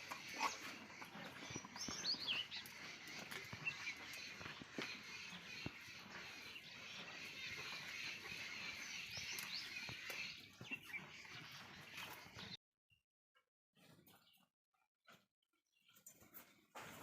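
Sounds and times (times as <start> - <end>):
small birds chirping: 0.0 - 12.6.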